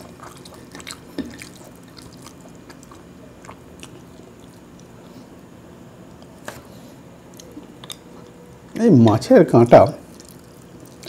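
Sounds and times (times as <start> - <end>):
wet chewing and lip smacks: 0.0 - 5.2, 10.1 - 11.0.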